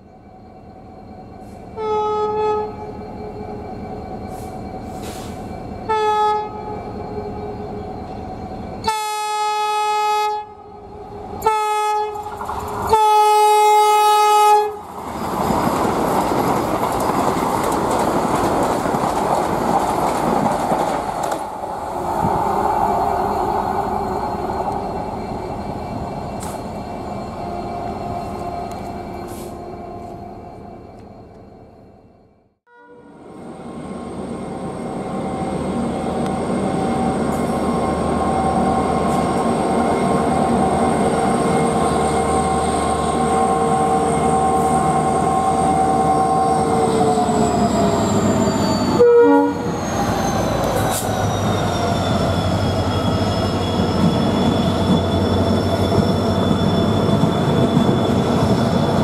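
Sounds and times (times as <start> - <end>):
train rushing and rail rumble: 0.0 - 59.0
train horn blasts: 1.8 - 3.4, 5.8 - 7.6, 8.8 - 14.8, 32.7 - 33.2, 48.9 - 49.7.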